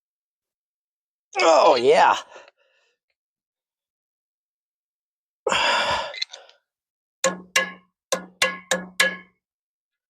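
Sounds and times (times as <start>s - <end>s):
hammer blows on steel: 7.2s - 9.4s.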